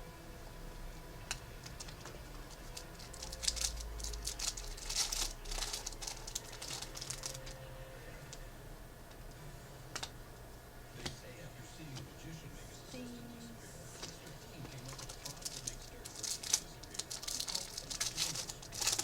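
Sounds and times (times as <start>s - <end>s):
cards rustling and clicking: 1.3s - 8.4s, 13.9s - 19.0s.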